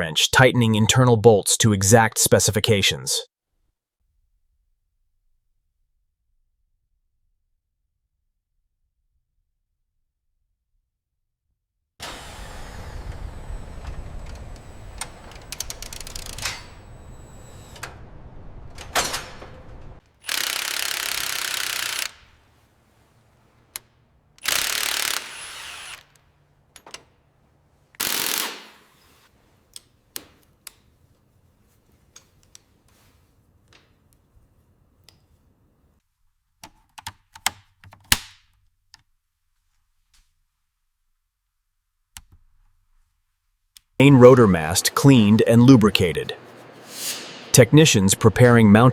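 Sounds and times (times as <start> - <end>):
power tool bursts: 12.0 - 18.1, 20.1 - 26.4, 28.0 - 29.3
steady machine noise: 12.0 - 22.4, 24.4 - 26.1
hand tools clicking: 20.2 - 22.4, 23.7 - 26.2, 27.9 - 29.0.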